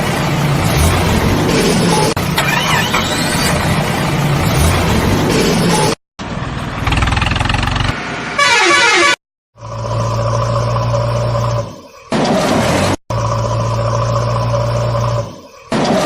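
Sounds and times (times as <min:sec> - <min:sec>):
truck engine noise: 0:00.0 - 0:16.0
truck horn blast: 0:08.3 - 0:09.2.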